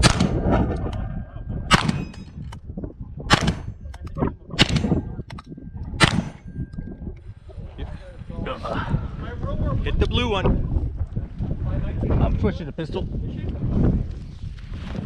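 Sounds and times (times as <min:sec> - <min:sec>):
gunshots: 0:00.0 - 0:00.9, 0:01.7 - 0:02.6, 0:03.3 - 0:04.0, 0:04.6 - 0:05.2, 0:06.0 - 0:06.5
steel target clanging: 0:01.7 - 0:02.5, 0:06.0 - 0:06.7.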